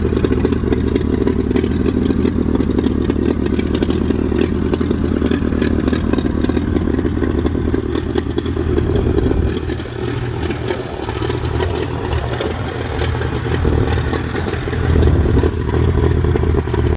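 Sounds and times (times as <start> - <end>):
tractor engine running: 0.0 - 16.9.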